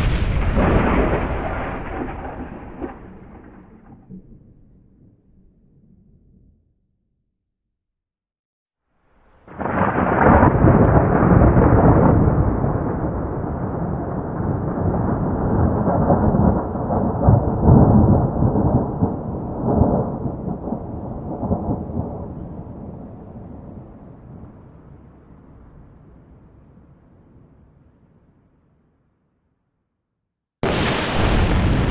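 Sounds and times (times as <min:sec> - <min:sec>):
thunderclap: 0:00.0 - 0:06.3, 0:09.4 - 0:26.3, 0:30.6 - 0:31.9
rolling rumble of thunder: 0:00.0 - 0:06.8, 0:09.4 - 0:27.6, 0:30.6 - 0:31.9.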